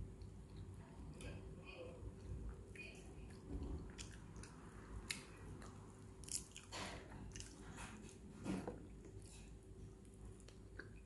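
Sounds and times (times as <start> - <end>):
person chewing chicken: 3.8 - 7.9.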